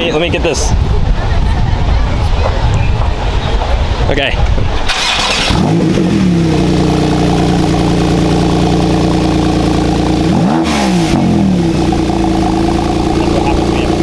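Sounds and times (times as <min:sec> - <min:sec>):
car engine idling with rev: 0:05.0 - 0:14.0.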